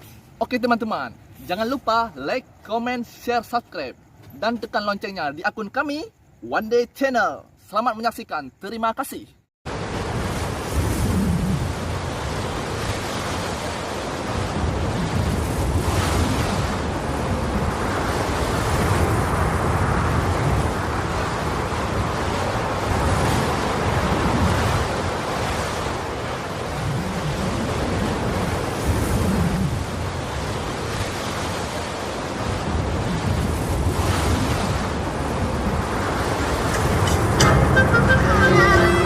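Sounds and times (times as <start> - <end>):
water noise: 9.7 - 39.0
wind buffeting microphone: 10.0 - 37.5.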